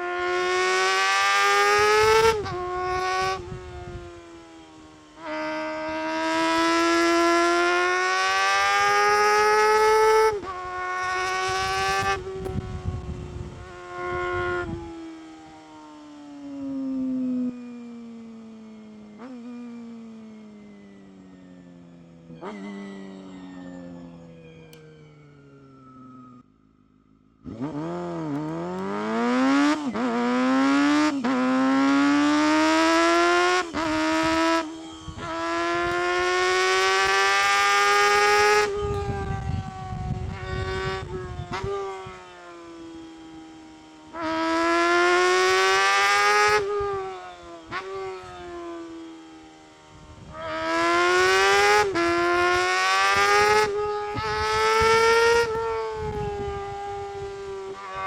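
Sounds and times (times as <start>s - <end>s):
motorcycle engine revving hard: 0.0s - 4.3s, 5.0s - 15.4s, 27.2s - 42.4s, 44.1s - 48.9s, 50.2s - 58.0s.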